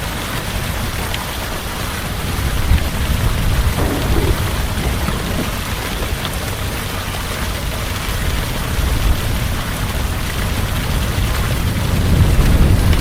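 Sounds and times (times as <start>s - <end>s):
low thunder rumble: 3.6s - 6.8s
heavy rain falling: 3.7s - 7.2s.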